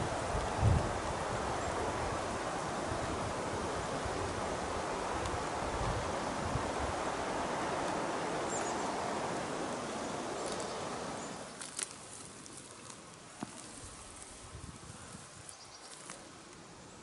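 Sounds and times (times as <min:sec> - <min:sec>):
steady rushing noise: 0:00.0 - 0:11.5
footsteps through grass: 0:11.5 - 0:16.3
twigs snapping and rustling: 0:11.5 - 0:16.6.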